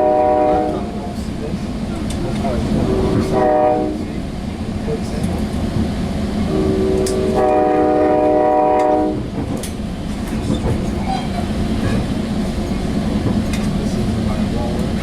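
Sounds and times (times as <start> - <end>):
train horn blast: 0.0 - 1.0, 2.8 - 4.2, 6.5 - 9.3
train rumbling on rails: 0.0 - 15.0.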